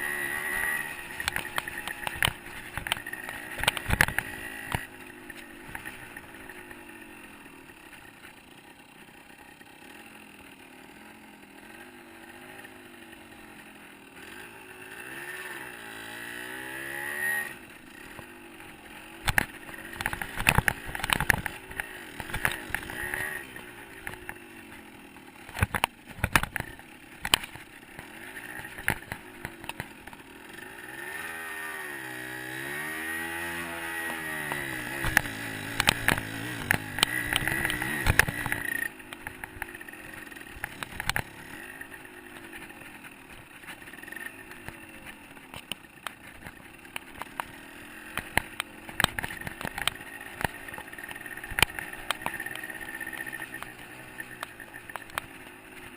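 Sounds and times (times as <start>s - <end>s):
dirt bike engine revving: 0.0s - 55.9s
sharp knocks and clatter: 1.1s - 6.0s, 19.2s - 23.3s, 25.5s - 30.2s, 34.5s - 39.8s.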